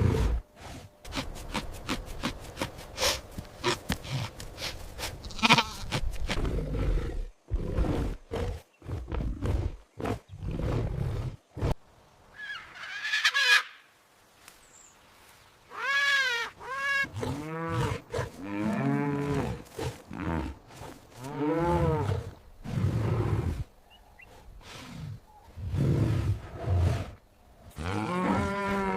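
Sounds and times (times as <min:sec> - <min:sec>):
farm animal calls: 0:01.1 - 0:06.1.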